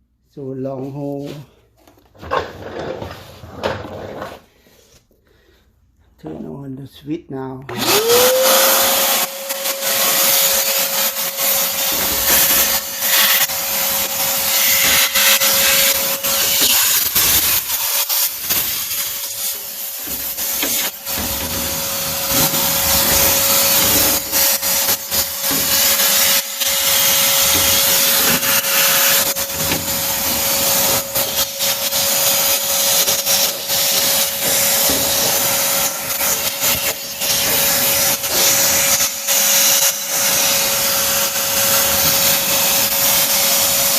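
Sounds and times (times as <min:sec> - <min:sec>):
hose scraping and rubbing: 0:00.8 - 0:05.1, 0:11.4 - 0:39.0
vacuum cleaner running: 0:07.7 - 0:43.9.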